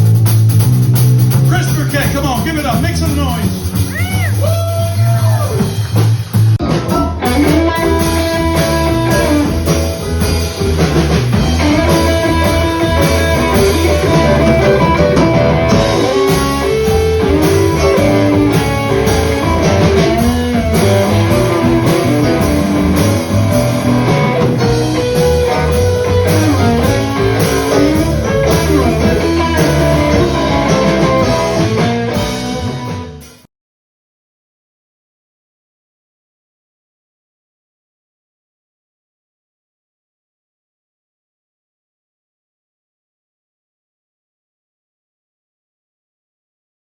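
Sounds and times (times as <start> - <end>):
live blues-rock band: 0.0 - 33.4
lead guitar: 6.6 - 33.4.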